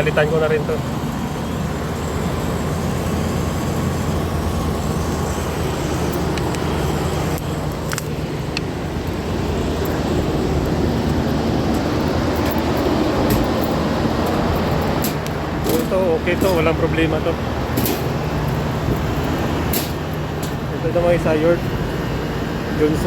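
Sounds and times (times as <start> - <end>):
low rumble of running machinery: 0.0 - 23.0.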